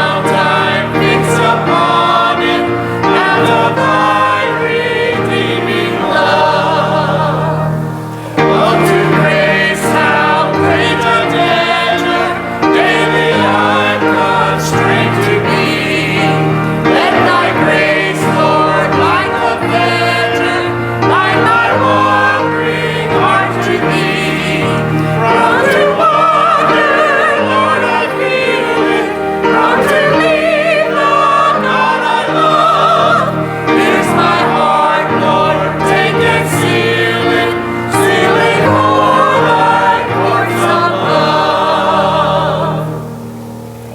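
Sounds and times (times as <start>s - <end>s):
choir singing a hymn: 0.0s - 43.9s
sustained instrumental accompaniment: 0.0s - 43.9s.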